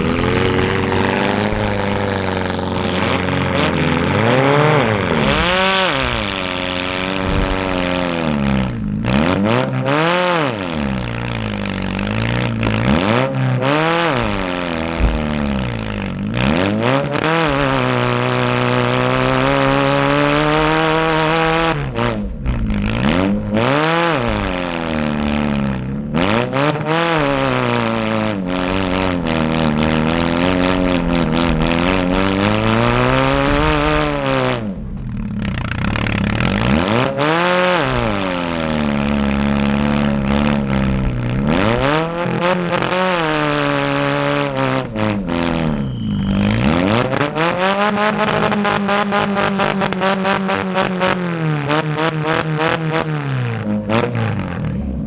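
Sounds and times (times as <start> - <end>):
small car engines revving: 0.0 - 55.0.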